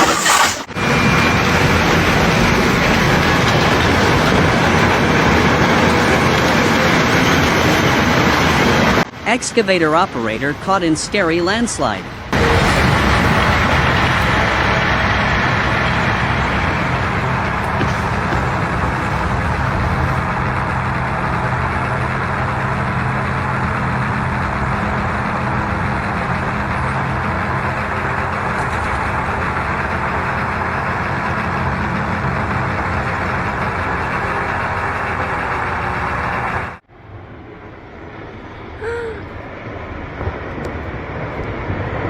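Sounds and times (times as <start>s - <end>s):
loud rushing noise: 0.0s - 9.1s
diesel engine running: 0.0s - 9.4s, 12.0s - 38.4s.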